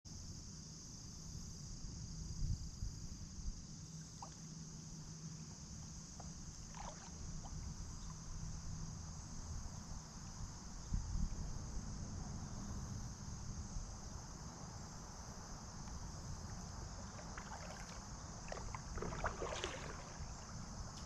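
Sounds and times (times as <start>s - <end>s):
insect drone: 0.1s - 21.0s
water and kayak handling noise: 6.1s - 8.3s, 15.8s - 21.0s
kayak bumps: 17.1s - 21.0s.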